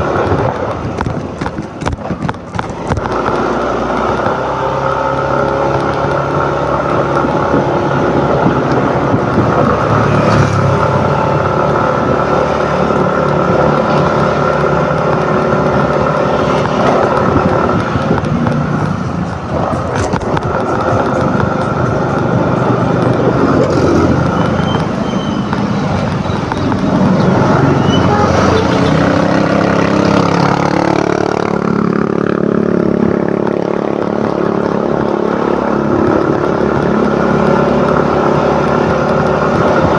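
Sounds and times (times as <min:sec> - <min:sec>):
road and traffic noise: 0:00.0 - 0:39.9
scooter engine running: 0:00.0 - 0:39.9.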